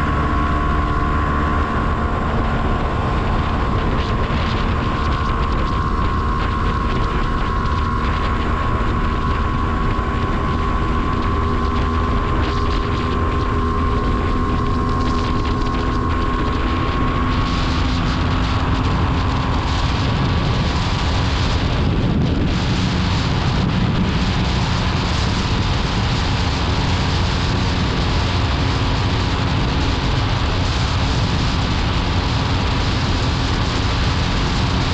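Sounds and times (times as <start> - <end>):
two-stroke motorcycle engine running: 0.0 - 34.9.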